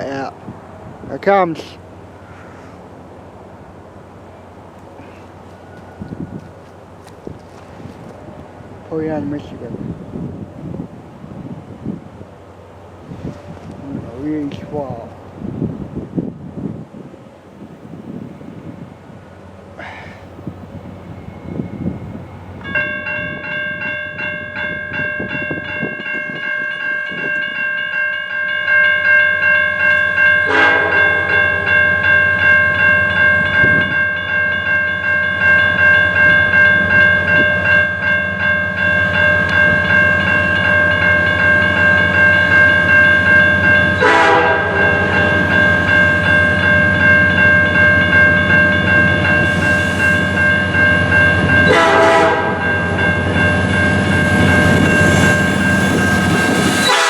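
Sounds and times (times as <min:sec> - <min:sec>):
train air horn: 0:30.4 - 0:31.7, 0:44.0 - 0:45.3, 0:51.6 - 0:52.6, 0:56.6 - 0:57.0.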